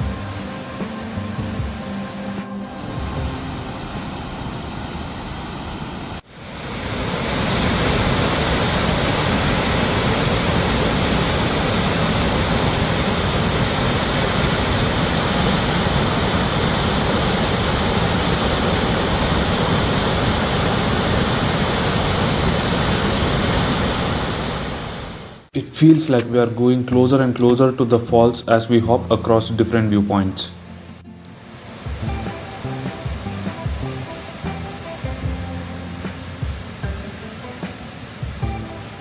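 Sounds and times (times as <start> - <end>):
roar of falling water: 6.3 - 25.3.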